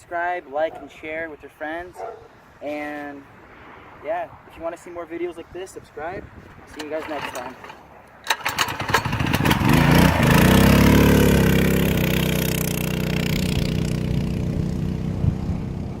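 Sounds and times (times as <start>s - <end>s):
mini bike engine revving: 6.7s - 14.9s.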